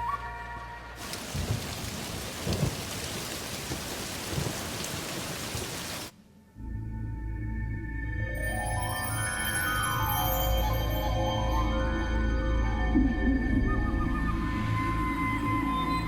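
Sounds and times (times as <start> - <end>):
music: 0.0 - 1.0, 6.2 - 16.0
heavy rain pouring: 1.0 - 6.1
thunder rumbling: 1.0 - 6.1.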